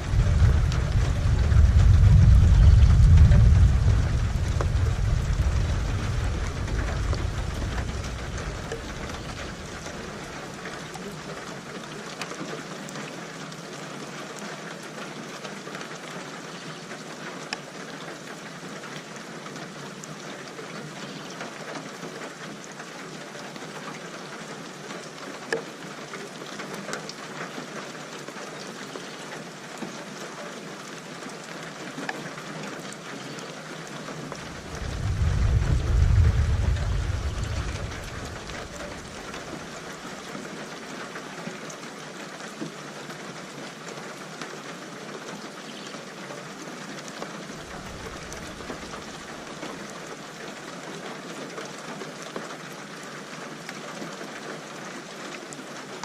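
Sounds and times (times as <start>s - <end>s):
low thunder rumble: 0.0s - 10.4s, 34.3s - 40.0s, 47.6s - 49.2s
raindrop clicks: 0.0s - 13.0s, 32.9s - 41.2s, 47.6s - 50.0s
steady rain hissing: 0.0s - 56.0s.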